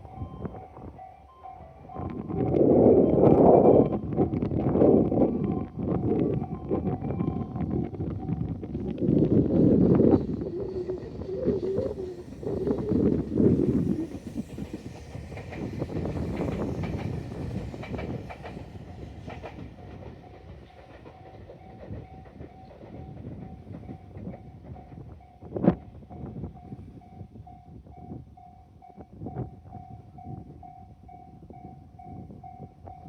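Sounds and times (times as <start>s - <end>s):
train wheels clicking over rail joints: 7.9s - 26.9s.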